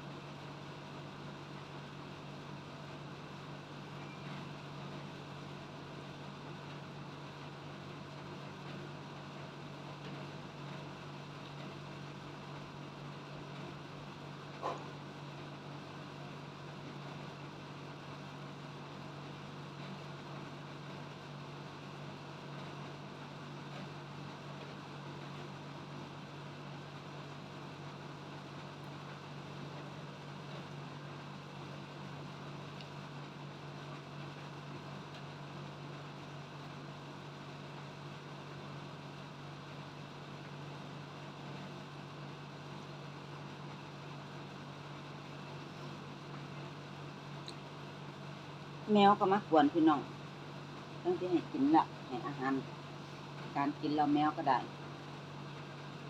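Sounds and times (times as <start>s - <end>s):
constant hiss: 0.0s - 56.0s.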